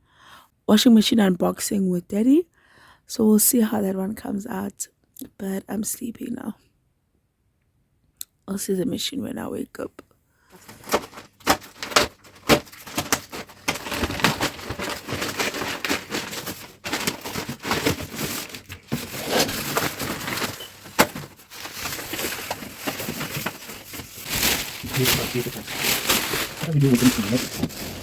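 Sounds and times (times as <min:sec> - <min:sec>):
packaging crunching and cracking: 0:10.6 - 0:28.0.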